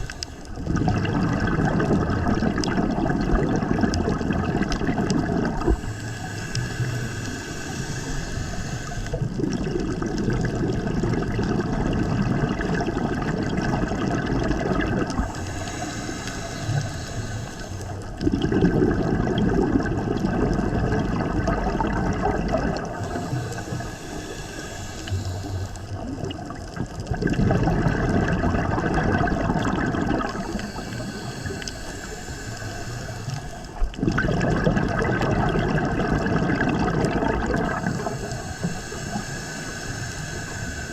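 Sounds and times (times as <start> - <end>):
regulator inhale hiss: 0.0 - 0.7, 5.5 - 10.0, 13.2 - 18.2, 21.7 - 26.6, 30.0 - 34.0, 37.6 - 40.9
bubbling gurgling exhale: 0.0 - 40.9.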